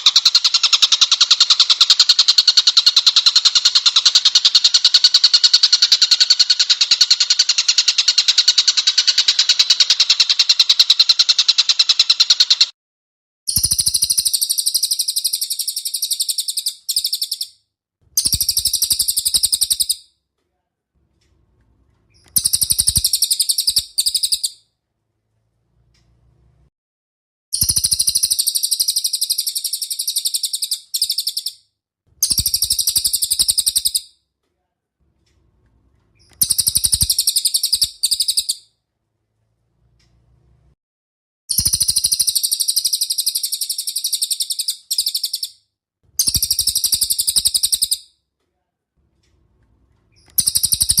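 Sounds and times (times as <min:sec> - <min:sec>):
songbird fast buzzy trills: 0:13.5 - 0:17.5, 0:18.2 - 0:20.0, 0:22.2 - 0:24.6, 0:27.6 - 0:31.6, 0:32.2 - 0:34.1, 0:36.2 - 0:38.6, 0:41.5 - 0:45.6, 0:46.2 - 0:48.0, 0:50.2 - 0:51.0.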